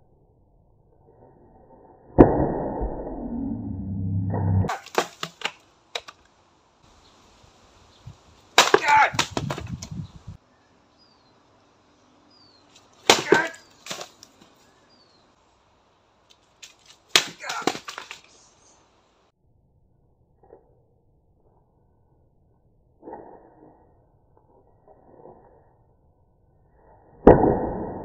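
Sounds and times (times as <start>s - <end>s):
wooden boards cracking: 4.7s - 6.2s, 8.6s - 9.9s, 13.0s - 14.4s, 16.6s - 18.3s.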